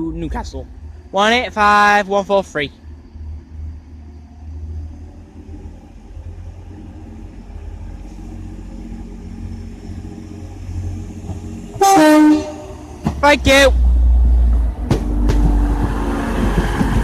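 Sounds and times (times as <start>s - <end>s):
diesel train low rumble: 0.0s - 17.0s
loud train horn: 11.8s - 12.9s.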